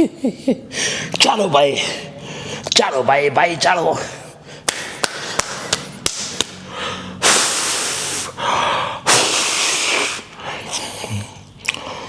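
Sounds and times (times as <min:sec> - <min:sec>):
man exhaling forcefully: 0:06.6 - 0:10.3.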